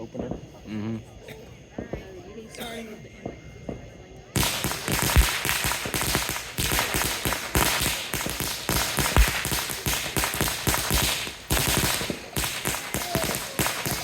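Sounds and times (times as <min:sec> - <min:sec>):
fireworks bangs and crackles: 0:03.2 - 0:14.0.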